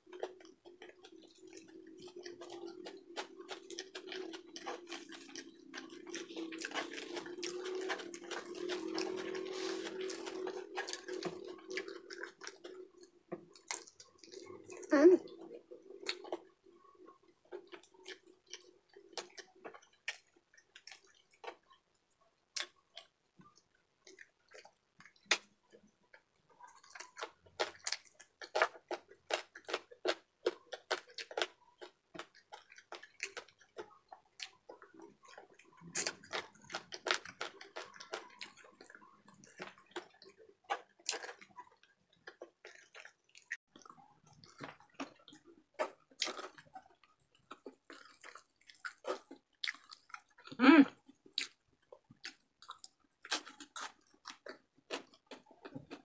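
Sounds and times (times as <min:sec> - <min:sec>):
wet chewing: 0:00.0 - 0:56.0.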